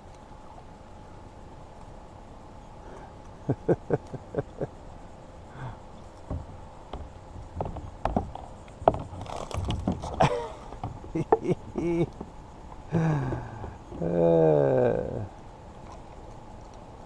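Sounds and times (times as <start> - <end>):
fishing gear knocking on kayak: 6.3 - 10.1.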